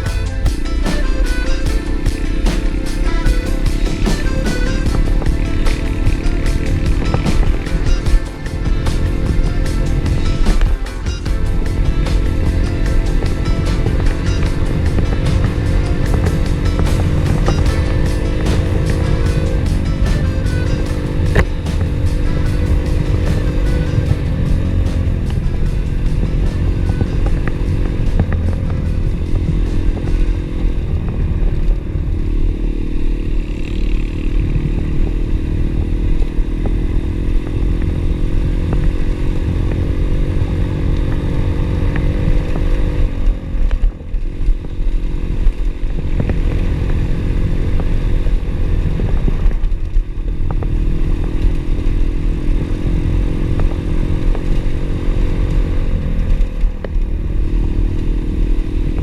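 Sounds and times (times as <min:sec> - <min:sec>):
pit bike engine: 0:00.0 - 0:59.0.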